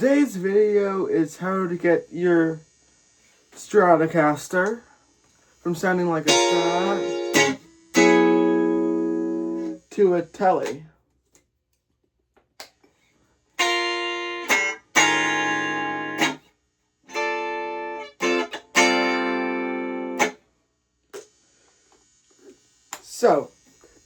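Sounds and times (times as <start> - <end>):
electric guitar strumming chords: 5.9 - 9.8, 13.6 - 16.4, 17.1 - 20.4.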